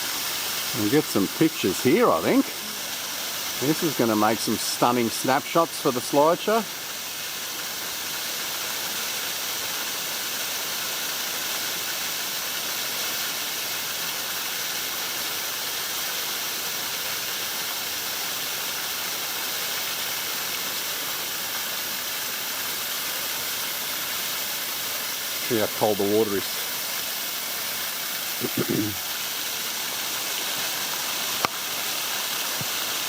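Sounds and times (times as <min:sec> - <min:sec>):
small waterfall rushing: 0:00.0 - 0:33.0
person speaking: 0:00.7 - 0:02.9, 0:03.6 - 0:06.7, 0:25.4 - 0:26.5, 0:28.4 - 0:29.0.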